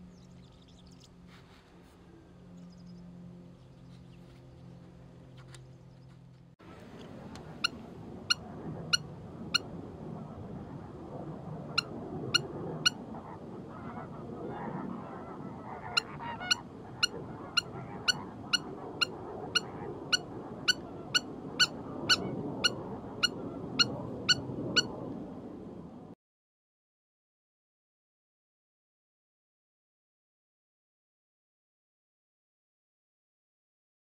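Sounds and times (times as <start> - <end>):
bird honking calls: 1.1 - 9.6, 15.0 - 24.9.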